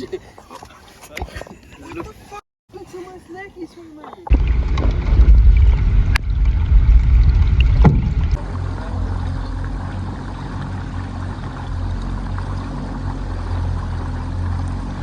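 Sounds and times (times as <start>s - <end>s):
boat hull and water rumble: 4.2s - 15.0s
boat engine hum: 4.3s - 15.0s
sharp knocks: 7.4s - 8.4s.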